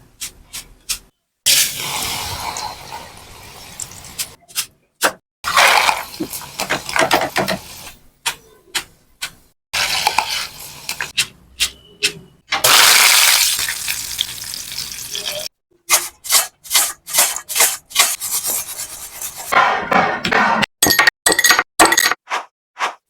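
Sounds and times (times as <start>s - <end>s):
frying sizzle in hot oil: 1.5s - 4.4s, 5.5s - 8.0s, 9.8s - 11.1s, 12.6s - 15.5s
spatula stirring in pan: 9.8s - 12.2s, 15.9s - 19.5s.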